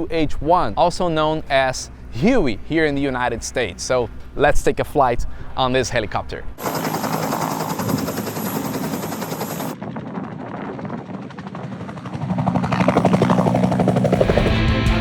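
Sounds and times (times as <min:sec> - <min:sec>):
helicopter rotor blades beating: 0:06.6 - 0:15.0.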